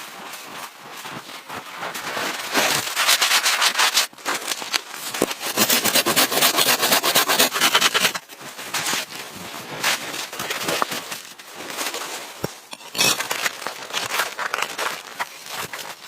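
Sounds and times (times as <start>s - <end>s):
rough rasping and scraping: 5.2s - 8.3s, 12.4s - 16.0s.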